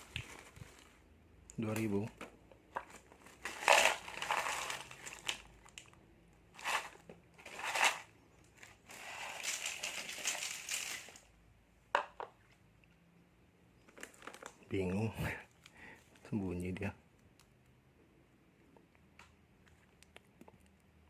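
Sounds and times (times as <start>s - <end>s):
plastic snack packets crinkling: 2.7s - 11.3s, 13.8s - 17.5s.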